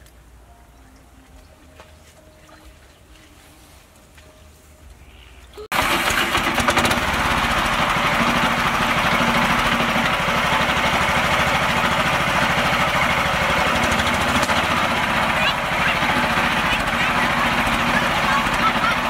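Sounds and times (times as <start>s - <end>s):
tractor engine chugging: 5.7s - 19.0s.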